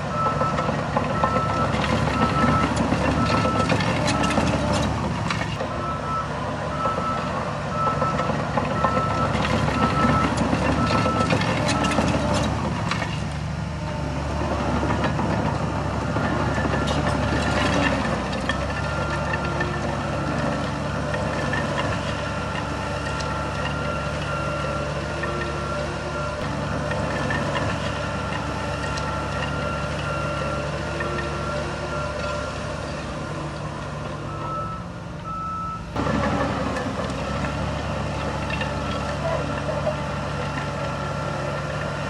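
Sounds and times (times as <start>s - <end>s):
heavy machinery diesel engine: 0.0s - 42.0s
reversing alarm beeping: 0.1s - 4.8s, 5.6s - 12.4s, 18.6s - 20.5s, 21.7s - 26.6s, 27.3s - 32.6s, 34.2s - 36.0s.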